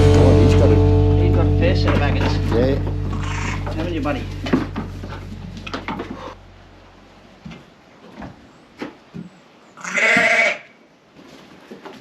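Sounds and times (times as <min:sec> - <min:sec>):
background music: 0:00.0 - 0:05.6
knocks and shuffles of handling: 0:01.9 - 0:06.4
lamb bleating: 0:03.1 - 0:03.8, 0:09.8 - 0:10.7.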